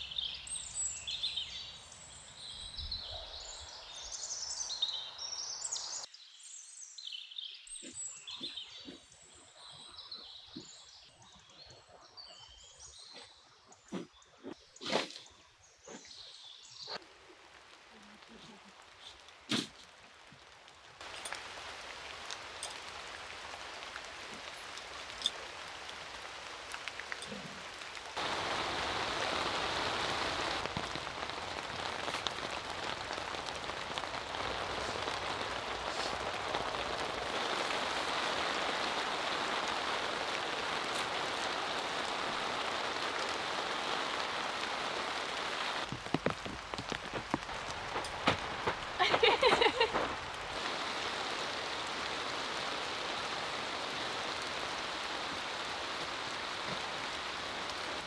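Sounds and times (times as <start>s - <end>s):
rain falling: 0.0s - 6.1s, 16.0s - 58.0s.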